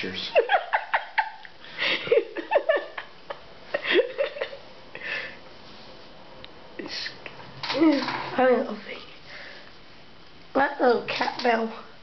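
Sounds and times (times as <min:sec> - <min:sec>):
person giggling: 0:00.4 - 0:05.3.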